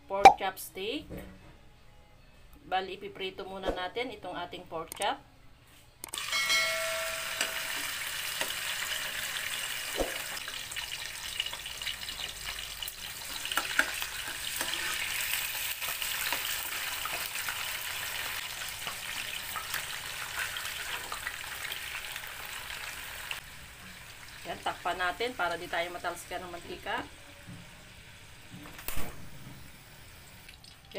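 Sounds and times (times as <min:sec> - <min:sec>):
meat sizzling in oil: 0:06.2 - 0:25.4.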